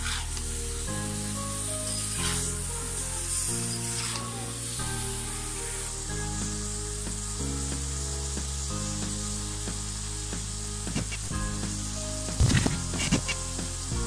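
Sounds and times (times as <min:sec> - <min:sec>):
food sizzling in a wok: 0:00.0 - 0:14.0
soft background music: 0:00.0 - 0:14.0.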